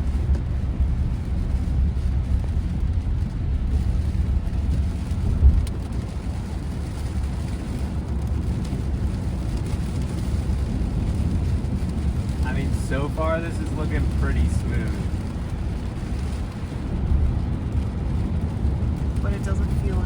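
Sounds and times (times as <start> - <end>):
rain: 0.0 - 20.0
tyre noise on wet road: 0.0 - 20.0.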